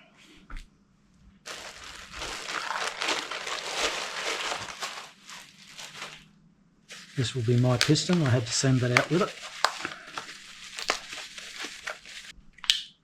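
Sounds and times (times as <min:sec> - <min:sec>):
packaging crinkling: 0:01.5 - 0:06.3, 0:06.9 - 0:12.3.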